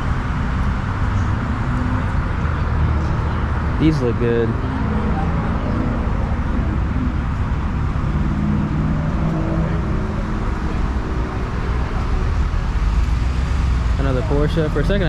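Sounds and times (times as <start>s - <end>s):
background noise of cars: 0.0s - 15.0s
car engines idling: 0.0s - 15.0s.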